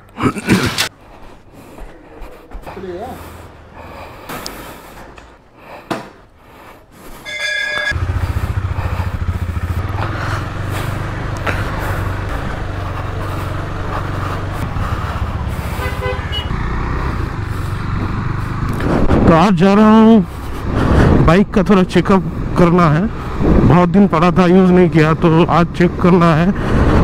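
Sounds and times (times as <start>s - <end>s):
short horn beeps: 7.2s - 8.0s
motorcycle engine running: 7.8s - 19.3s.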